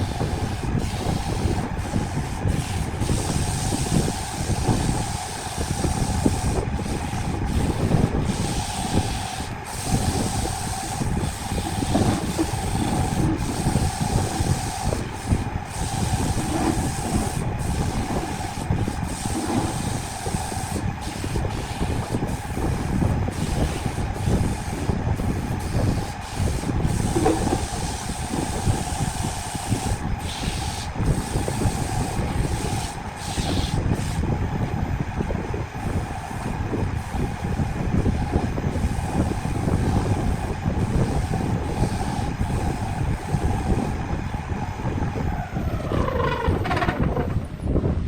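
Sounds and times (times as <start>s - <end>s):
rough scraping on wood: 45.8s - 47.6s.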